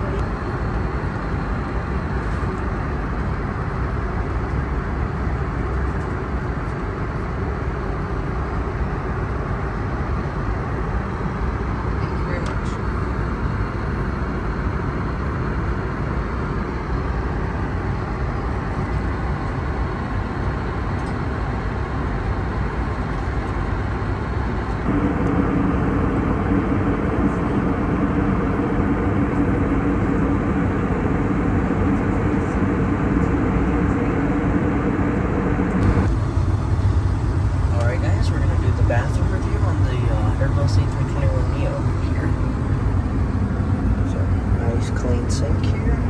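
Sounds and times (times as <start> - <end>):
steady hum: 24.8 - 46.0
aircraft cabin rushing noise: 24.9 - 46.0.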